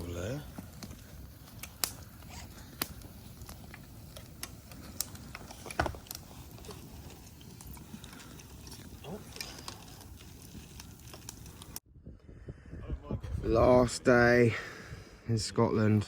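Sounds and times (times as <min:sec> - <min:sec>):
campfire crackling and popping: 0:00.0 - 0:11.8.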